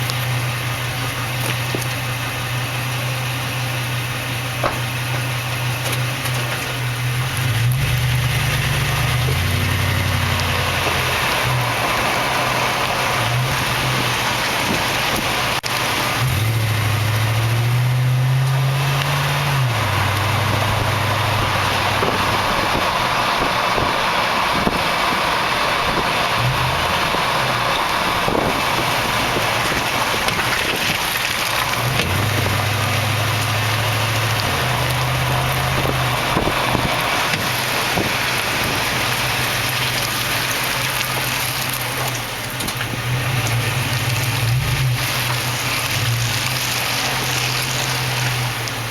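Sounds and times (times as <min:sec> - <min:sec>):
road noise: 0:00.0 - 0:48.9
truck engine hum: 0:00.0 - 0:48.9
clunk from rear of truck: 0:04.6 - 0:06.8.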